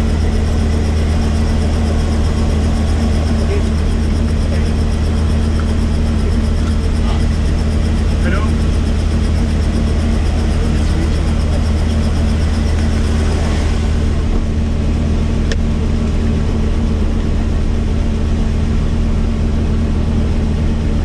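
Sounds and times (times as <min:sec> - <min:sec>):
helicopter drone: 0:00.0 - 0:21.0.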